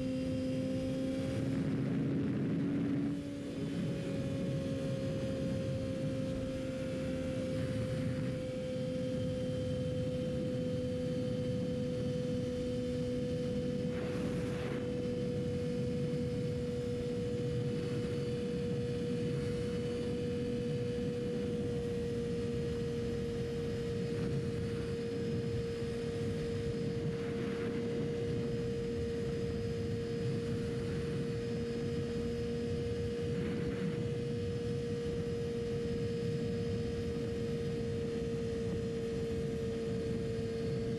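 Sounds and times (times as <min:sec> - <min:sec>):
motorcycle engine cruising: 0:00.0 - 0:40.9
wind rush: 0:11.2 - 0:40.9.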